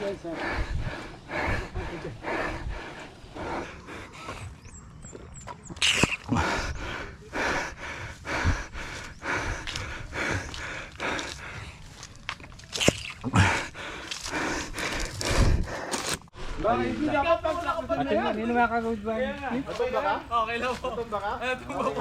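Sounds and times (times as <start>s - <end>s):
person panting heavily: 0.0s - 4.8s, 5.8s - 12.2s, 13.2s - 16.2s.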